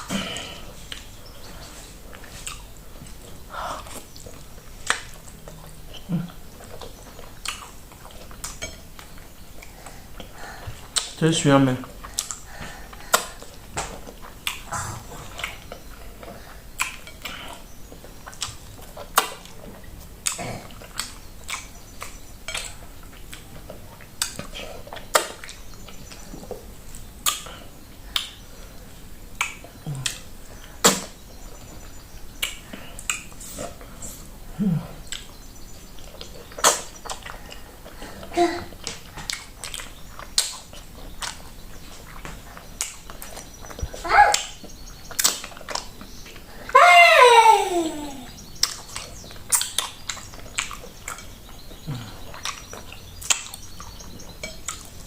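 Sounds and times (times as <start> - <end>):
chewing smacks and clicks: 0.8 - 34.4, 35.0 - 46.5, 48.4 - 55.0.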